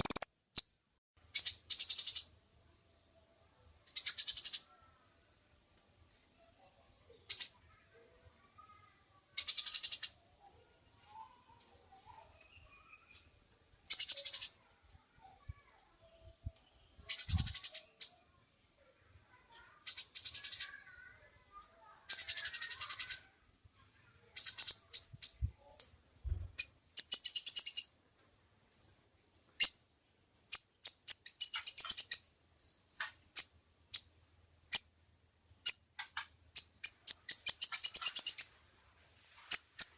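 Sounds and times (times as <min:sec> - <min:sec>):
sharp high bird chips: 0:00.0 - 0:00.7, 0:17.1 - 0:18.2, 0:19.9 - 0:20.8, 0:22.1 - 0:23.2, 0:26.6 - 0:27.9, 0:30.5 - 0:32.3, 0:36.6 - 0:38.6, 0:39.5 - 0:39.9
sunbird chattering trills: 0:00.0 - 0:00.7, 0:13.9 - 0:14.6, 0:17.1 - 0:18.2, 0:19.9 - 0:21.0, 0:22.1 - 0:23.3, 0:26.6 - 0:27.9, 0:30.5 - 0:32.3, 0:36.6 - 0:38.6, 0:39.5 - 0:39.9.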